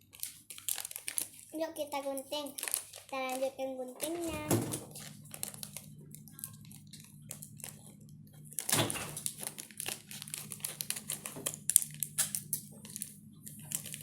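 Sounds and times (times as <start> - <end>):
plastic wrapper crinkling: 0.0 - 14.0
scissors snipping plastic: 8.6 - 14.0.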